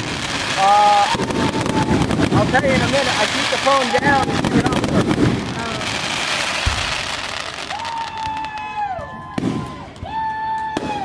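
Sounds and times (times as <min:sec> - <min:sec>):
firework bang: 0:00.0 - 0:08.4, 0:09.3 - 0:09.8
firework hissing rush: 0:00.0 - 0:08.6
whistling fireworks: 0:00.0 - 0:11.0.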